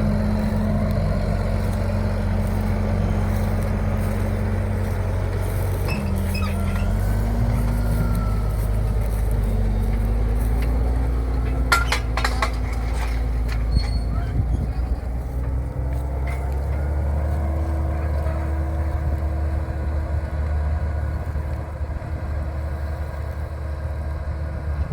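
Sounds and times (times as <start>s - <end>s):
tractor engine running: 0.0s - 24.9s
sharp clicks and squeaks: 5.6s - 7.2s, 11.4s - 15.6s.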